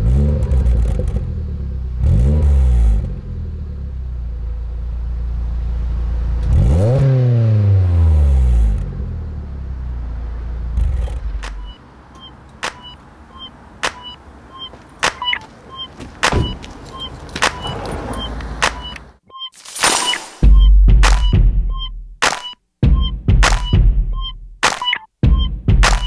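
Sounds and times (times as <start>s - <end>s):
car engine idling and revving: 0.0s - 19.2s
sharp regular clicks: 11.4s - 13.0s.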